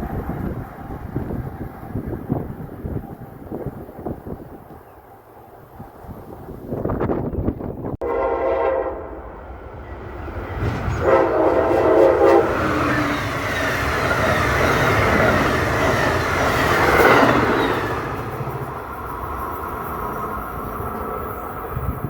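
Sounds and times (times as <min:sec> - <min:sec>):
train wheels rushing on rail: 0:00.0 - 0:22.0
train horn blasts: 0:08.0 - 0:10.0, 0:10.6 - 0:13.6.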